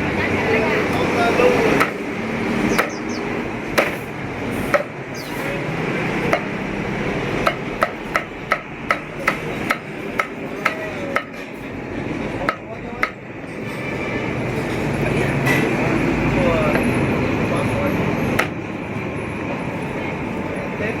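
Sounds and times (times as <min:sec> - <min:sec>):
cleaver chopping on wooden block: 0:01.8 - 0:02.0, 0:03.8 - 0:04.0, 0:04.7 - 0:04.9, 0:06.3 - 0:06.5, 0:07.4 - 0:11.4.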